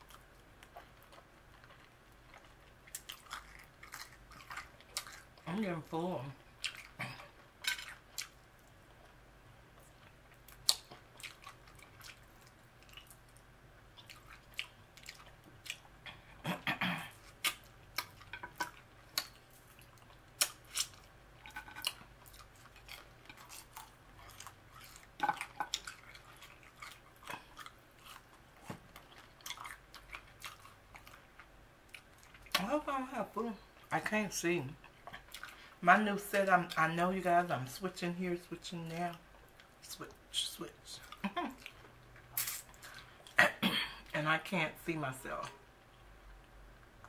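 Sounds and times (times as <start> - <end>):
chewing crunchy food: 0.0 - 32.7, 34.8 - 35.8, 41.0 - 43.4.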